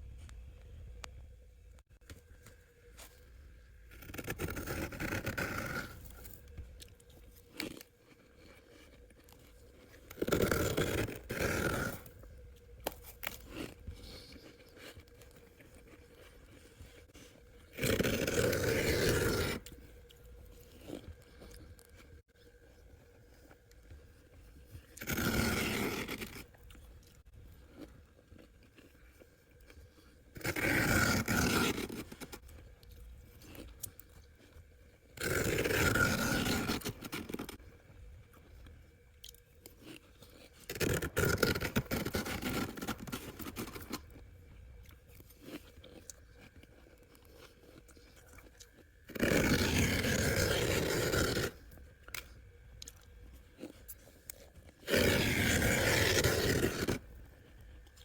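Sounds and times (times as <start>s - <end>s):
frost being scraped: 3.9s - 6.4s, 10.0s - 12.1s, 17.1s - 19.7s, 25.0s - 26.6s, 30.4s - 32.4s, 35.2s - 37.6s, 40.7s - 44.0s, 49.1s - 51.6s, 54.8s - 57.1s.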